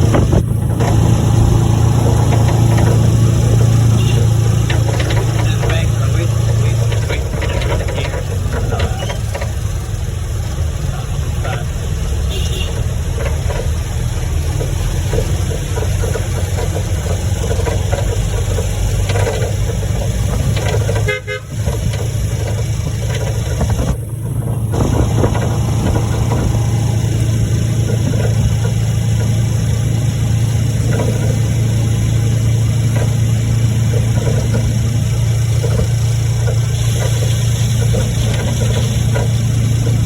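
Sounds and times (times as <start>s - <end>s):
road noise: 0.0s - 40.0s
vehicle engine humming: 0.0s - 40.0s
car horn toot: 3.8s - 4.6s, 12.2s - 13.0s, 20.9s - 21.6s.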